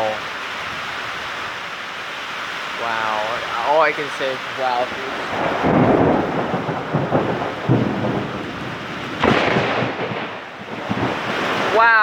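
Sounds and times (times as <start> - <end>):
heavy rain pouring: 0.0 - 12.0
thunder rumbling: 2.8 - 12.0.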